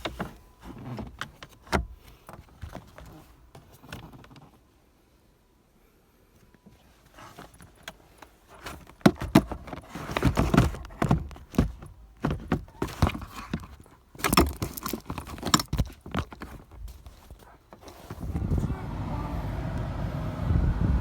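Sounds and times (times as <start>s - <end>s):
hands handling plastic parts: 6.8s - 18.2s.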